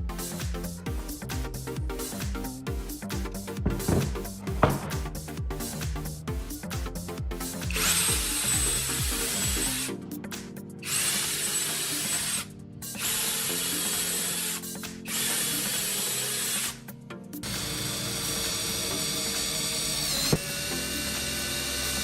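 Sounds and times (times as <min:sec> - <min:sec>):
background music: 0:00.0 - 0:22.0
power tool whining: 0:07.7 - 0:10.0, 0:10.8 - 0:16.8, 0:17.4 - 0:22.0.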